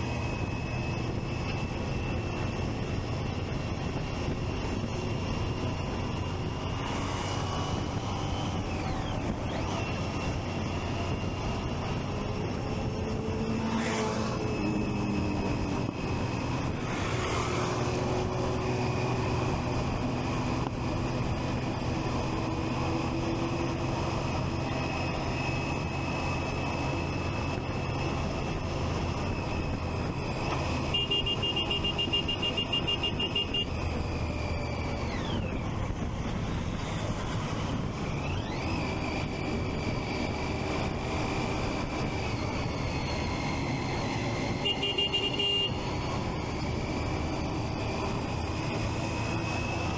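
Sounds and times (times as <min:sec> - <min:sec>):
motorcycle engine running: 0:19.4 - 0:49.9.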